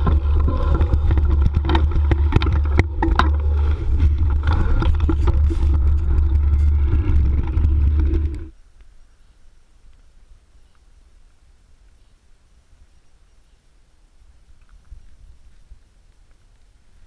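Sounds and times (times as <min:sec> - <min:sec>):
bike rattles and knocks: 0:00.0 - 0:08.5
wind rumble on microphone: 0:00.0 - 0:08.6.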